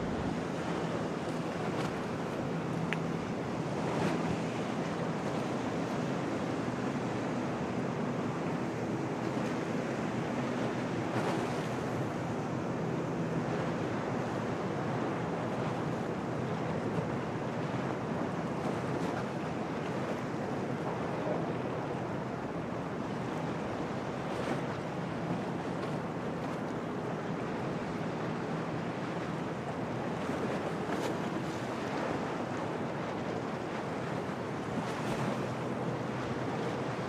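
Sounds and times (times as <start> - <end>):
storm wind: 0.0 - 1.2
wind buffeting microphone: 0.0 - 2.6
waves washing in: 0.0 - 37.0.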